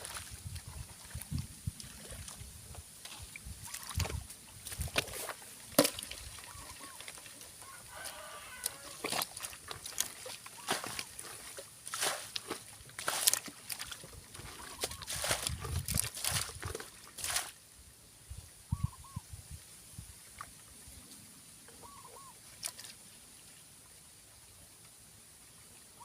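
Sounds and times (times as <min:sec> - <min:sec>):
splashing in shallow water: 0:00.0 - 0:17.6, 0:21.8 - 0:23.0
rooster crowing: 0:07.6 - 0:09.1.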